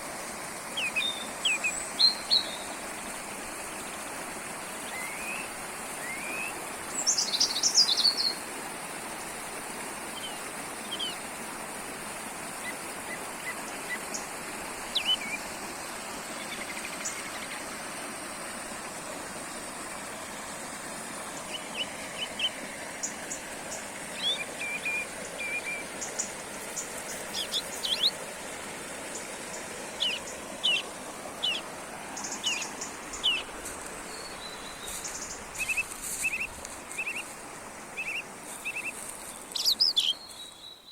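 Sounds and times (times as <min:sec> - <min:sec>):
brook babbling: 0:00.0 - 0:40.9
songbirds chirping and singing: 0:31.4 - 0:31.6.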